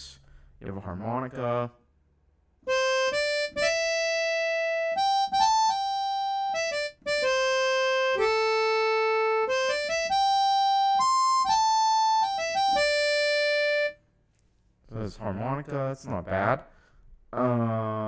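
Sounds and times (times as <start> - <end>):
harmonica slow melody: 2.7 - 14.0.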